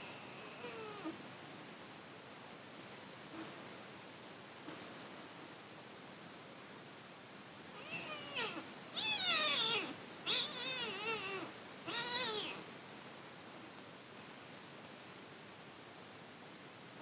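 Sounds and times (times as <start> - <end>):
kitten meowing: 7.8 - 12.6.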